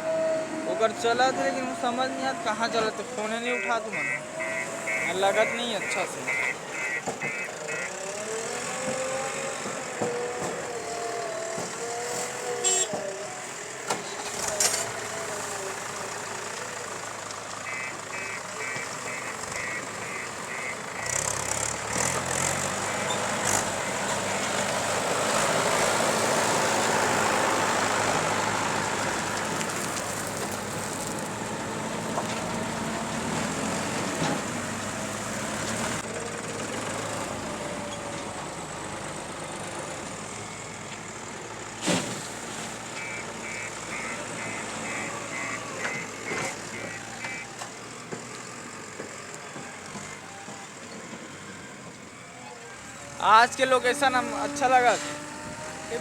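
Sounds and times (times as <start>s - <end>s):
diesel engine working: 0.0s - 56.0s
short repeated beeps: 3.6s - 7.9s.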